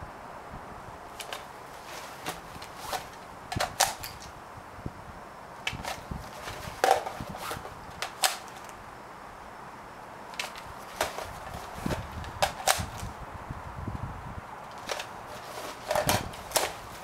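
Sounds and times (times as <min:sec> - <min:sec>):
clicks of airsoft gear handled: 0:01.2 - 0:04.3, 0:05.6 - 0:08.8, 0:10.3 - 0:13.2, 0:14.7 - 0:17.0.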